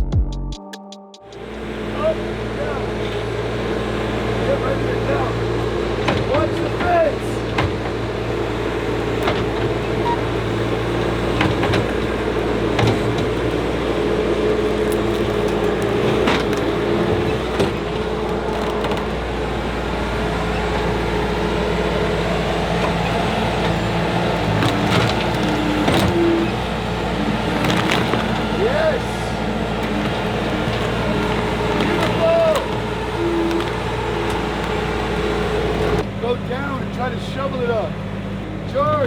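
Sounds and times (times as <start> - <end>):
heavy equipment engine running: 1.2 - 39.0
short knocks and clanks: 5.4 - 36.1.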